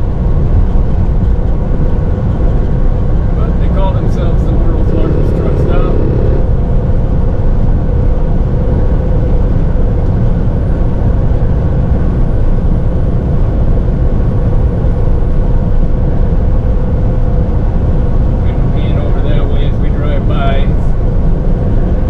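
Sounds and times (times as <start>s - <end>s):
faint steady hum: 3.4s - 6.6s.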